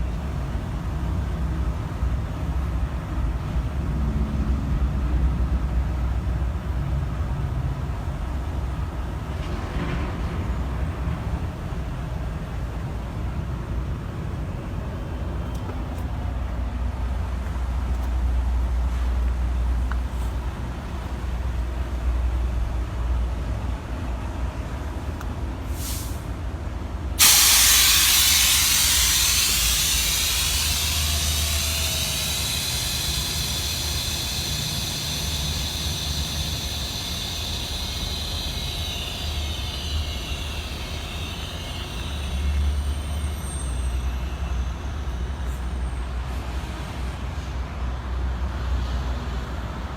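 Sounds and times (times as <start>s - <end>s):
compressed air hissing: 25.7s - 26.3s, 27.2s - 42.8s
diesel truck engine idling: 27.1s - 41.8s.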